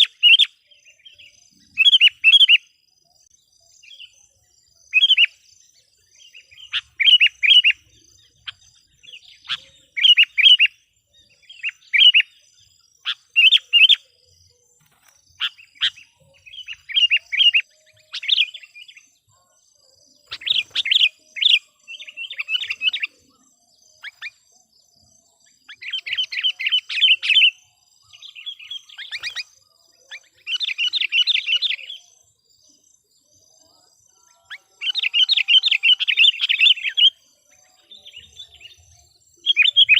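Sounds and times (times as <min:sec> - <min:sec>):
bulbul chattering calls: 0:06.4 - 0:12.4, 0:13.0 - 0:14.1, 0:14.8 - 0:19.1, 0:20.2 - 0:25.0, 0:25.6 - 0:32.1, 0:39.4 - 0:39.9.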